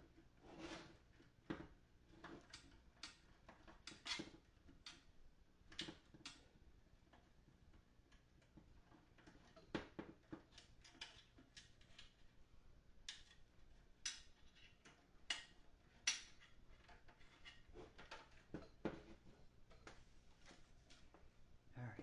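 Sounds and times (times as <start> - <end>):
small parts clicking and tapping: 1.5 - 6.5, 7.1 - 12.4, 13.0 - 20.0.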